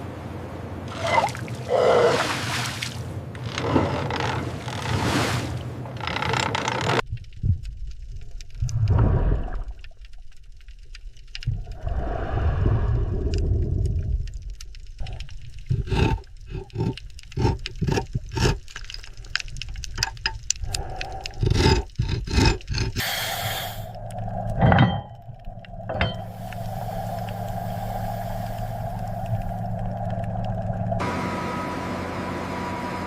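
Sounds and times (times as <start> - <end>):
low mechanical hum: 23.0 - 33.0.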